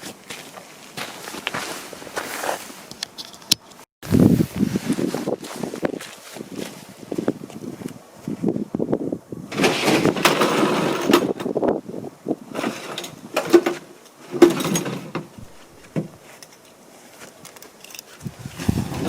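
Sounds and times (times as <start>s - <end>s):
rustle of heavy suit material: 0.0s - 2.9s, 4.1s - 8.4s.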